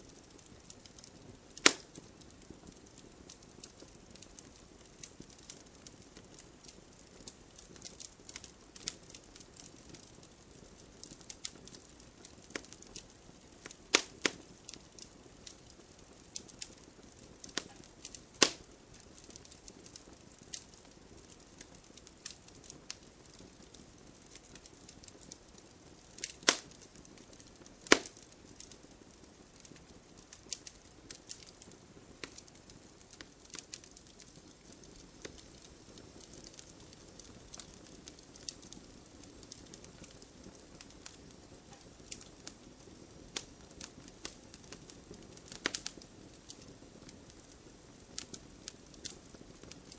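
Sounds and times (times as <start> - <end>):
faint steady hiss: 0.0 - 49.9
wood fire crackling: 0.0 - 49.9
loud sharp fire pops: 1.6 - 2.0, 13.6 - 14.4, 18.4 - 18.7, 26.2 - 26.8, 27.8 - 28.3.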